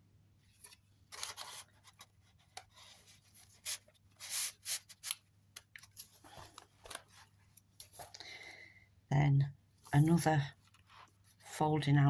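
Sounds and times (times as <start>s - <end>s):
paper and card rustling: 0.5s - 8.2s, 9.8s - 11.6s.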